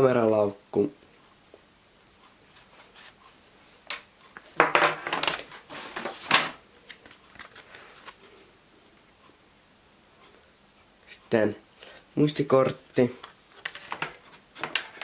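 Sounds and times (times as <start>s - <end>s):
packaging rustling and crinkling: 5.2s - 8.2s.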